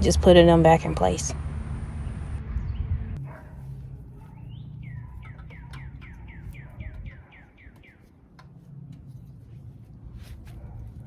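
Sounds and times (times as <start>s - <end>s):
low steady rumble: 0.0s - 7.2s
bird singing falling notes: 4.3s - 8.1s.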